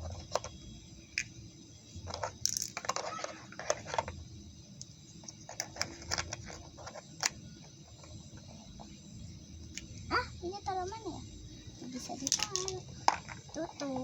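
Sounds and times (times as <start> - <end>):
plastic toy pieces clicking: 2.1 - 4.2, 12.2 - 13.8.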